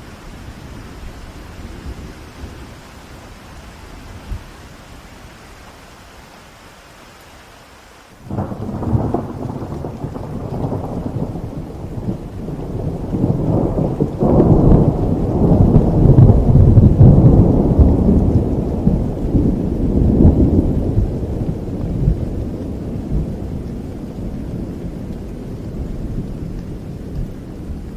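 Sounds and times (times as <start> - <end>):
steady rain: 0.0 - 27.9
thunder rumbling: 8.2 - 27.9.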